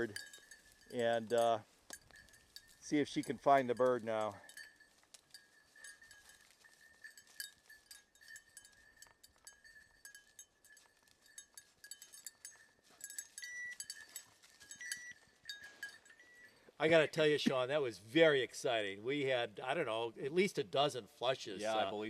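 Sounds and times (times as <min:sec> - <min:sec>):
collar bell tinkling: 0:00.0 - 0:17.5.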